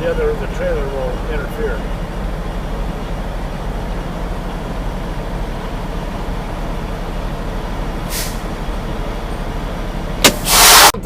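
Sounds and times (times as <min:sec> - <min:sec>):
diesel truck engine idling: 0:00.0 - 0:11.0
air hiss: 0:08.1 - 0:08.4, 0:10.2 - 0:11.0.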